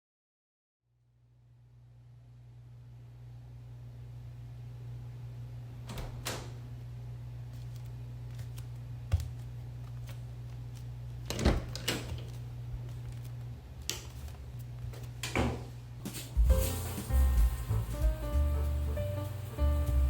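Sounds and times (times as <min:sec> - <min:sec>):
steady low hum: 0:01.2 - 0:20.0
objects being handled: 0:11.8 - 0:17.7.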